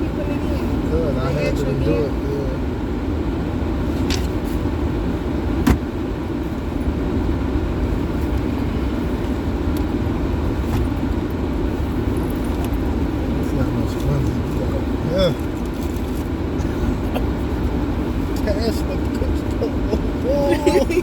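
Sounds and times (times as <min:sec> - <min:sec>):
car interior rumble: 0:00.0 - 0:21.0.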